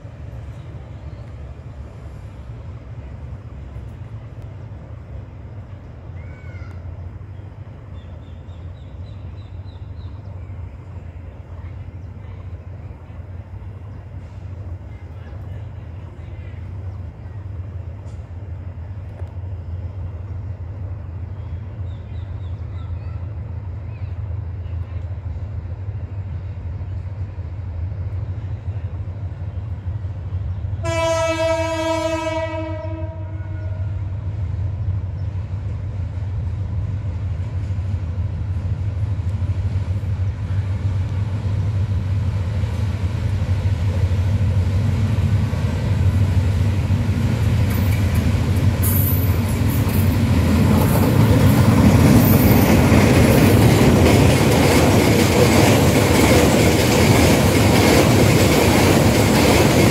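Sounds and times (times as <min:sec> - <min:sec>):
locomotive engine droning: 0:00.0 - 0:59.9
train horn blast: 0:30.8 - 0:34.2.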